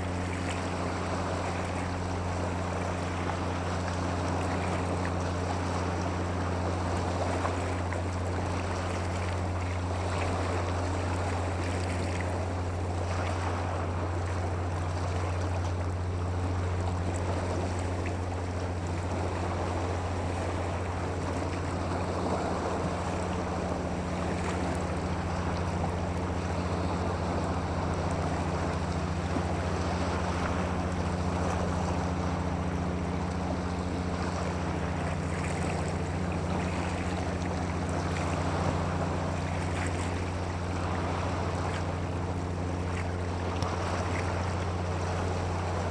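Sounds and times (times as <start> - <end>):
low mechanical hum: 0.0 - 45.9
water: 0.0 - 45.9
wind: 0.0 - 45.9.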